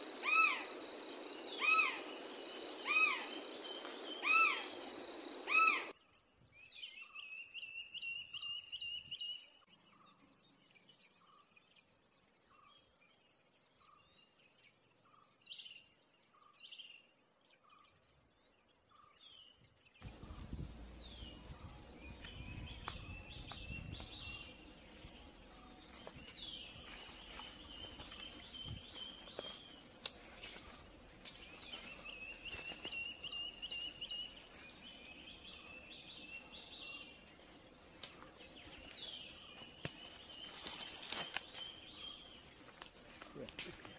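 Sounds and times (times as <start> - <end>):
background hiss: 20.0 - 43.9.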